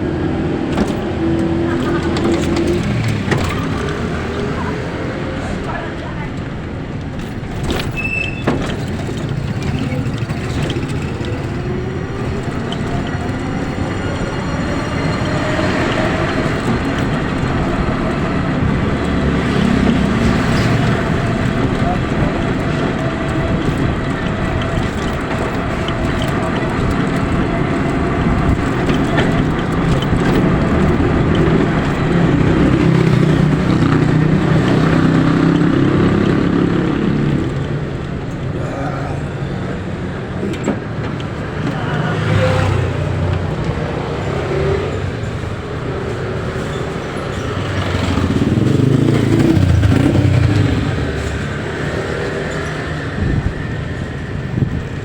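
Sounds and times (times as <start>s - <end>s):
vehicle engine and road rumble: 0.0s - 55.0s.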